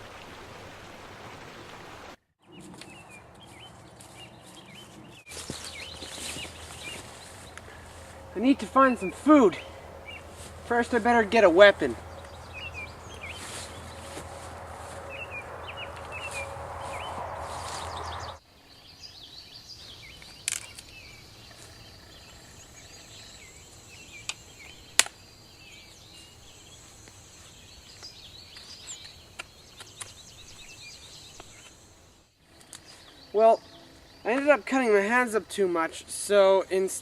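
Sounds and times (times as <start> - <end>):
birds chirping: 1.9 - 37.0
even rushing noise: 5.6 - 18.4.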